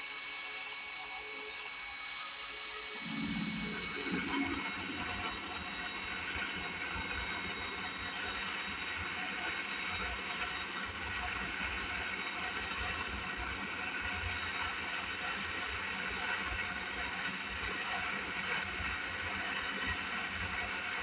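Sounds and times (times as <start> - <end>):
thin high steady tones: 3.0 - 8.8
lathe motor whirring: 3.0 - 10.5.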